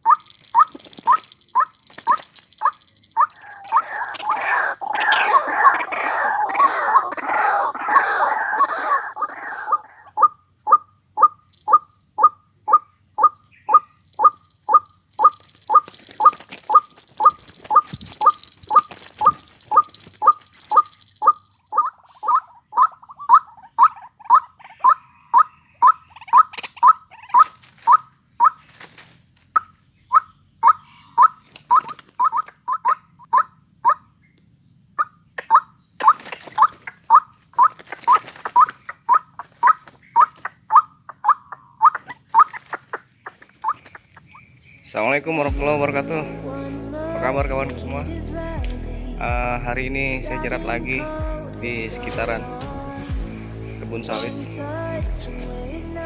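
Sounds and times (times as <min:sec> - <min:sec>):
insects shrilling: 0:00.0 - 0:10.3, 0:11.2 - 0:12.3, 0:13.2 - 0:22.4, 0:41.8 - 0:56.0
waterhen calling: 0:00.0 - 0:12.3.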